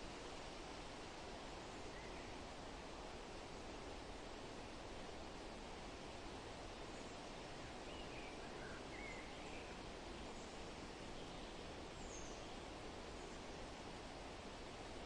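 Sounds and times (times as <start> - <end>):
wind rustling leaves: 0.0 - 15.0
faint bird chirps: 1.6 - 2.4, 6.9 - 13.6.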